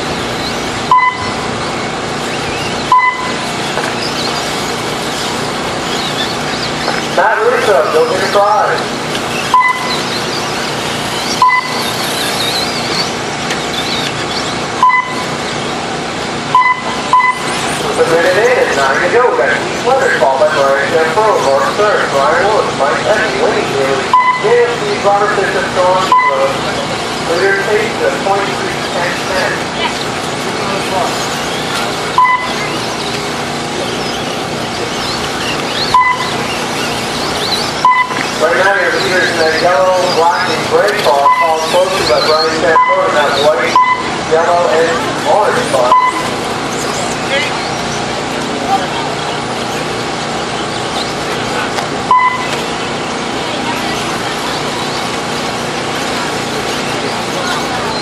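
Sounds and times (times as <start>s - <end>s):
toy truck motors whining: 0.0s - 14.6s
noisy background: 0.0s - 58.0s
short electronic beeps: 0.4s - 1.7s, 2.5s - 4.4s, 9.3s - 13.1s, 13.7s - 15.4s, 16.5s - 17.8s, 24.1s - 24.8s, 26.0s - 26.6s, 31.4s - 33.1s, 33.9s - 38.5s, 41.1s - 44.2s, 45.8s - 46.4s, 52.0s - 52.6s.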